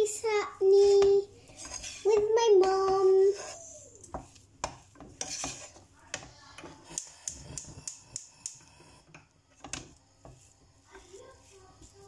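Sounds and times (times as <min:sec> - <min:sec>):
utensils and dishes clicking: 0:05.0 - 0:09.9.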